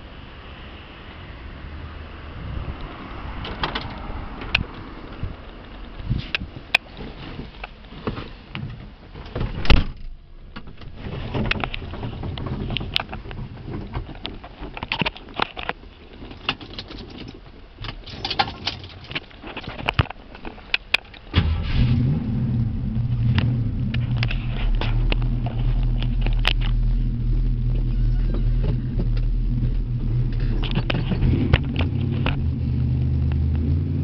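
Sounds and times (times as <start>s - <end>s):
loud thump: 9.4s - 11.5s
car engine starting and idling: 21.2s - 34.0s.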